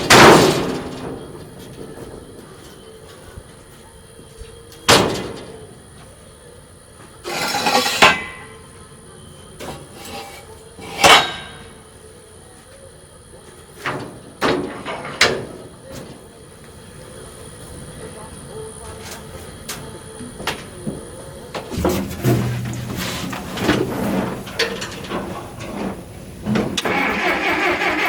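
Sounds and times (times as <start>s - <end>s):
rough scraping: 7.3s - 8.0s, 21.7s - 26.0s
hard knocks: 21.8s - 24.6s.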